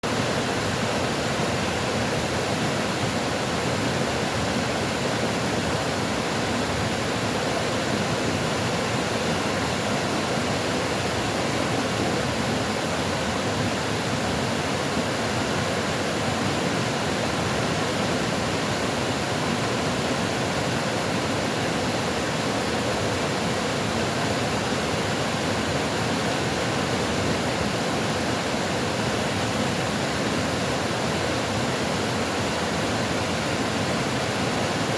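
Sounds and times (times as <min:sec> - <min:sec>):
rushing water: 0:00.0 - 0:34.9.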